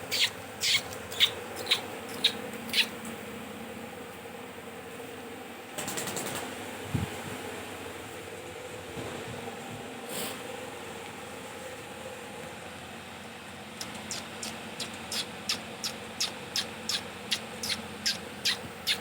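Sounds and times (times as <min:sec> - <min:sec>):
parakeets calling: 0:00.0 - 0:03.1, 0:13.8 - 0:19.0
low fan-like hum: 0:00.0 - 0:19.0.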